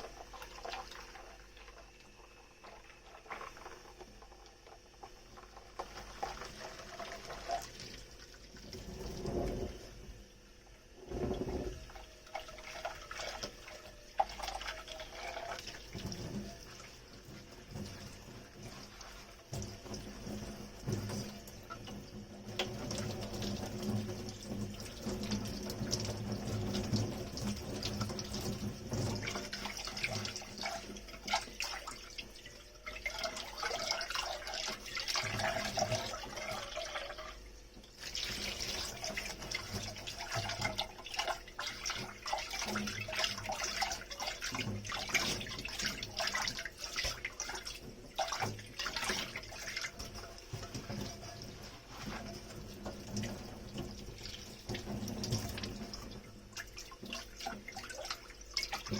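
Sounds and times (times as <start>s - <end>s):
tap water running into sink: 11.0s - 58.9s.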